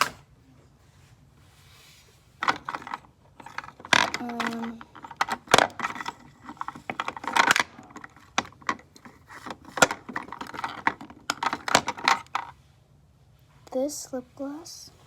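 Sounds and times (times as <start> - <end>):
plastic containers clattering: 2.4 - 12.5.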